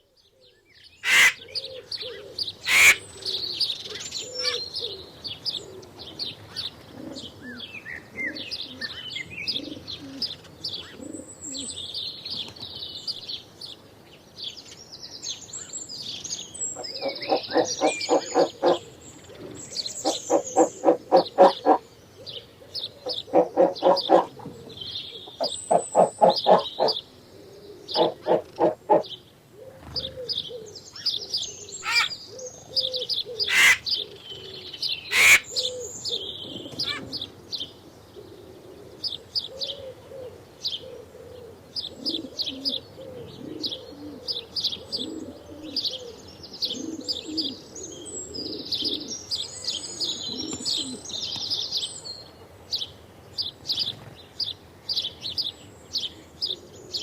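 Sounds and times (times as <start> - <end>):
low repeated bird calls: 0.0 - 5.7, 16.5 - 29.1, 30.3 - 37.3
small birds chirping and twittering: 0.0 - 57.0
loud sharp bird calls: 1.0 - 1.5, 2.6 - 4.7, 16.8 - 18.9, 31.8 - 32.4, 33.4 - 34.1, 35.0 - 35.9, 36.7 - 37.2.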